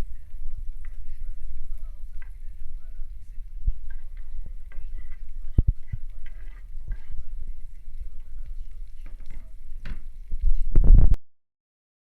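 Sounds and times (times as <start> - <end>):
food frying in a pan: 0.0 - 10.9
stirring scrape and clatter: 0.0 - 10.9.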